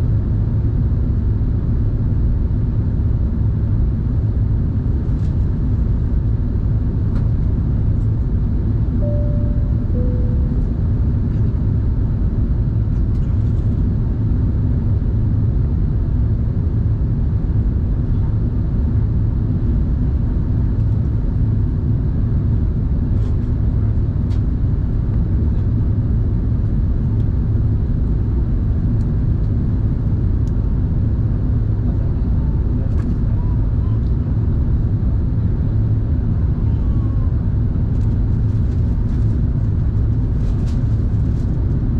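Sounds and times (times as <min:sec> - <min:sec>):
aircraft cabin engine rumble: 0:00.0 - 0:41.9
two-note cabin chime: 0:09.0 - 0:11.0.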